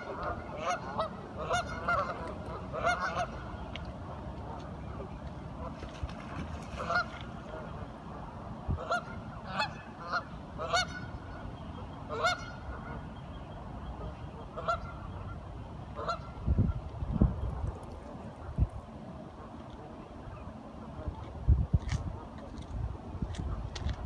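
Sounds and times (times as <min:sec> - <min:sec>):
waterfowl honking calls: 0:00.0 - 0:03.7, 0:06.7 - 0:07.8, 0:08.8 - 0:13.2, 0:14.0 - 0:16.4.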